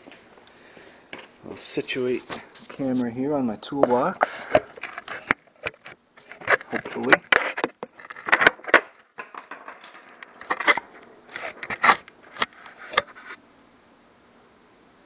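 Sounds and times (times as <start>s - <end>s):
camera being handled: 3.8s - 13.4s.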